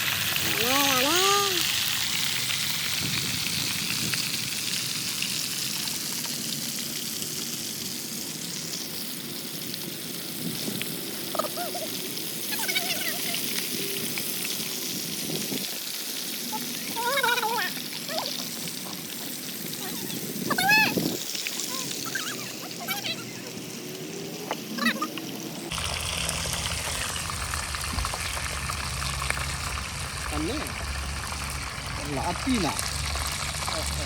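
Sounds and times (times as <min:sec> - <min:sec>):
food sizzling in hot oil: 0:00.0 - 0:34.0
voices: 0:00.4 - 0:01.7, 0:11.3 - 0:14.0, 0:16.4 - 0:18.6, 0:19.7 - 0:25.3.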